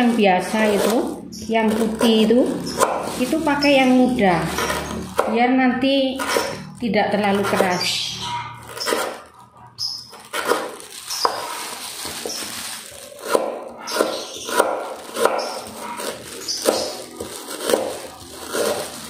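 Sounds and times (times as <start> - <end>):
dog barking: 8.2 - 9.1, 13.3 - 16.2.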